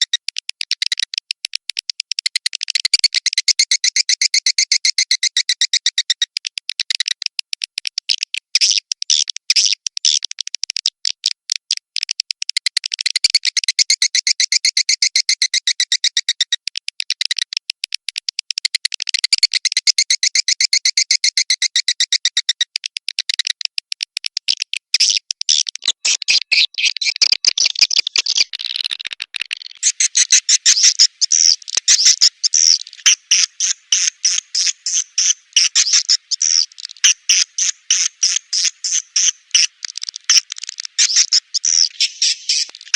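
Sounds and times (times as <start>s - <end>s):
swiftlet calls rapid chirps: 25.8s - 42.9s.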